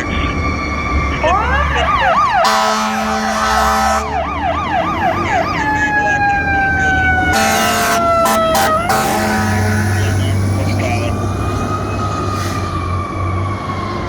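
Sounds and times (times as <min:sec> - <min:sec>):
fire engine siren: 0:00.0 - 0:14.0
air horn blasts: 0:02.1 - 0:04.2, 0:07.3 - 0:10.7.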